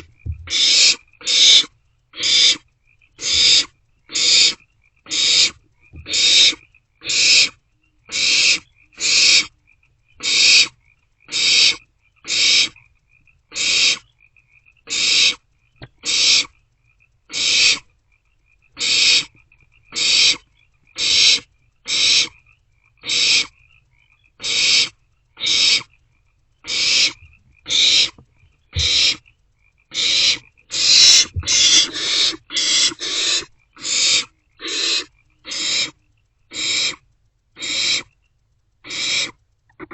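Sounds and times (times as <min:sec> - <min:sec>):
owlets hissing begging calls: 0:00.0 - 0:02.6, 0:03.2 - 0:09.5, 0:10.2 - 0:12.8, 0:13.5 - 0:14.1, 0:14.9 - 0:16.5, 0:17.3 - 0:17.9, 0:18.8 - 0:22.4, 0:23.0 - 0:23.6, 0:24.4 - 0:25.9, 0:26.6 - 0:29.2, 0:29.9 - 0:37.0, 0:37.6 - 0:38.1, 0:38.8 - 0:39.9
faint high chittering: 0:00.0 - 0:39.4.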